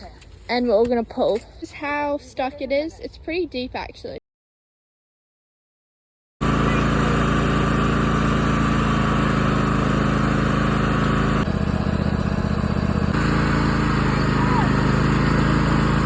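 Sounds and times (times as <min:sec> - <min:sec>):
small tractor engine running: 0:06.4 - 0:16.0.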